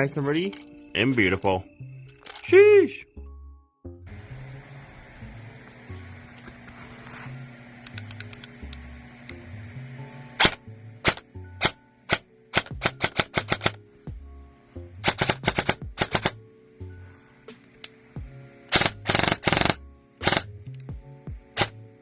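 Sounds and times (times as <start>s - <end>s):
background music: 0.0s - 22.0s
airsoft rifle firing: 10.4s - 13.8s, 15.0s - 16.4s, 18.7s - 20.5s.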